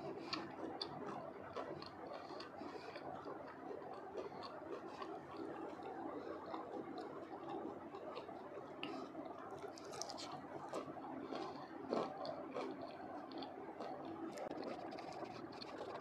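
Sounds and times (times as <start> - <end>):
chewing crispy fried potato: 0.0 - 16.0
wet mouth sounds: 0.1 - 16.0.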